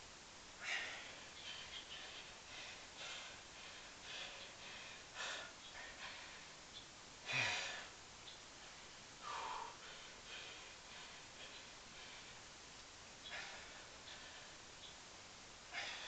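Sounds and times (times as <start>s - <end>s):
man breathing hard: 0.5s - 6.6s, 7.2s - 12.6s, 13.2s - 14.8s, 15.6s - 16.0s.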